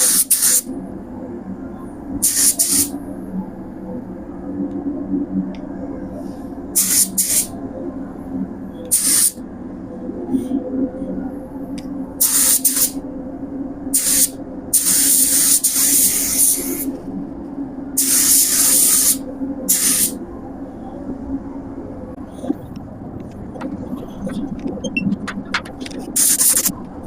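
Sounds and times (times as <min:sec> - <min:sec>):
spray gun hissing: 0:00.0 - 0:00.7, 0:02.2 - 0:02.9, 0:06.8 - 0:07.5, 0:08.9 - 0:09.4, 0:12.2 - 0:13.0, 0:14.0 - 0:16.9, 0:18.0 - 0:20.2
steady low hum: 0:00.0 - 0:27.0.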